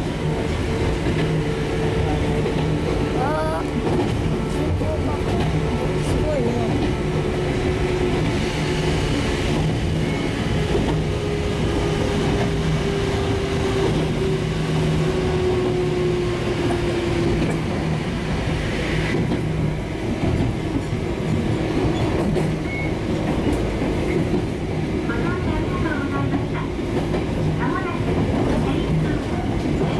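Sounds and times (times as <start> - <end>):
wheels rumbling on rail: 0.0 - 29.9.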